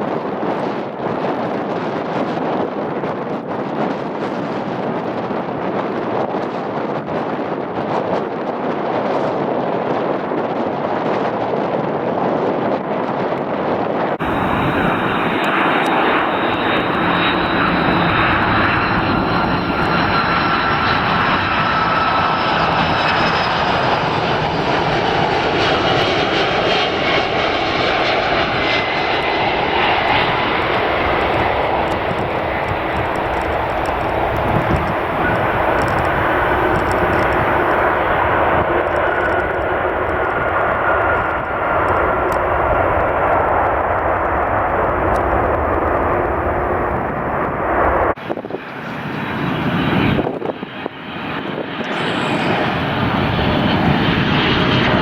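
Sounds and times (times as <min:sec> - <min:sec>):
jet engines whining: 0:14.2 - 0:55.0.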